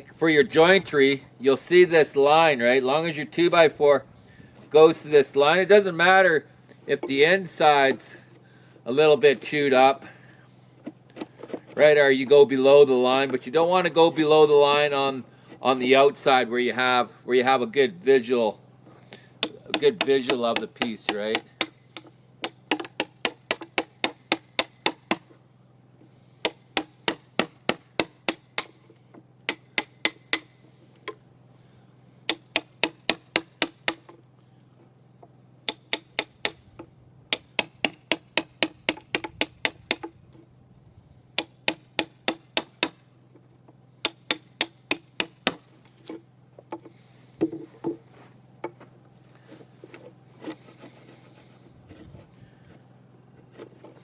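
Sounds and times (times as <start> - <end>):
hammer striking wood chisel: 19.4 - 25.3, 26.4 - 28.8, 29.5 - 30.6, 32.3 - 34.2, 35.7 - 40.1, 41.4 - 43.0, 44.0 - 45.7.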